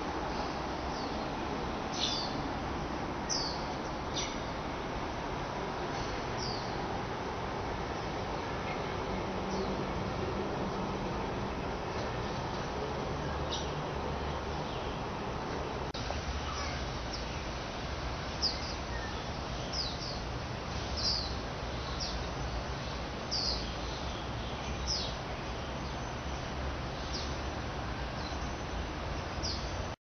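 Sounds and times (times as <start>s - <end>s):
low rumble and hiss: 0.0s - 30.0s
bird chirping: 1.9s - 2.5s, 3.3s - 4.6s, 13.2s - 15.0s, 18.3s - 20.2s, 20.9s - 27.4s.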